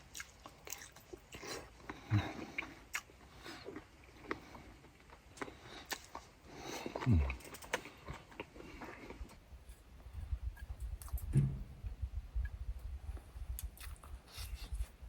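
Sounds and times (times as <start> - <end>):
mouth eating sounds: 0.0 - 4.5, 5.4 - 8.0
short low falling sound: 11.3 - 12.2.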